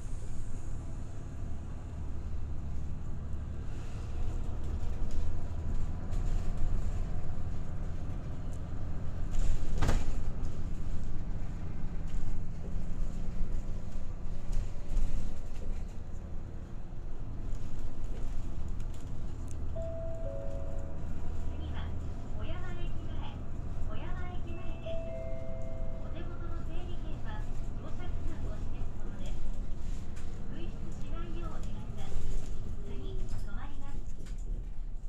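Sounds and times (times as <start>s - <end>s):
bus engine drone: 0.0s - 35.0s
road rumble: 0.0s - 35.0s.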